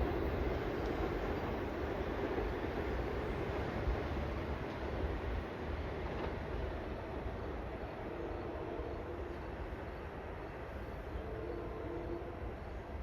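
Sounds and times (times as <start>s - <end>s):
train passing on tracks: 0.0s - 13.0s.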